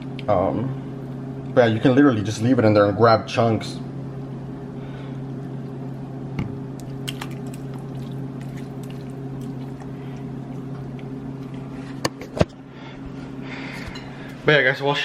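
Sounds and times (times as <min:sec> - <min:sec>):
steady low hum: 0:00.0 - 0:15.0
wet squishing of meat: 0:06.8 - 0:11.8.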